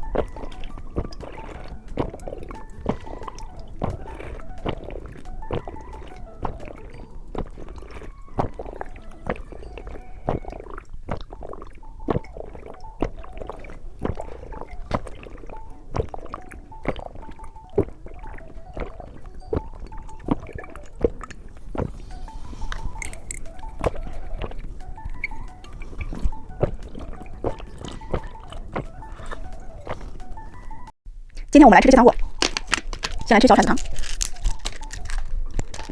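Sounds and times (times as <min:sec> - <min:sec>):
candy being chewed: 0:00.0 - 0:30.8, 0:31.9 - 0:35.9
quiet background music: 0:00.0 - 0:35.9.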